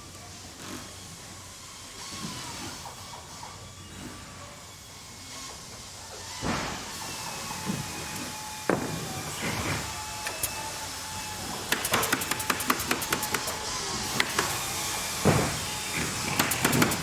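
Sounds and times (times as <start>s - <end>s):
machinery hum and hiss: 0.0s - 17.0s
rapid mechanical clicks: 11.7s - 13.6s, 16.3s - 17.0s.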